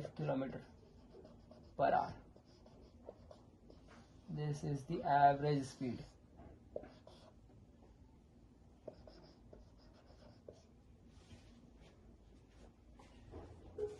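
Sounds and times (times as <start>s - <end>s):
pen scratching on paper: 0.0s - 7.4s, 8.8s - 10.7s.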